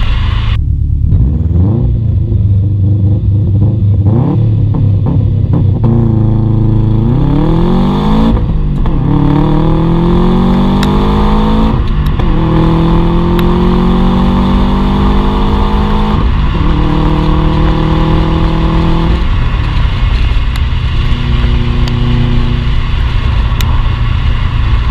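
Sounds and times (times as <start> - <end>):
turbocharged car engine accelerating: 0.0 - 24.9.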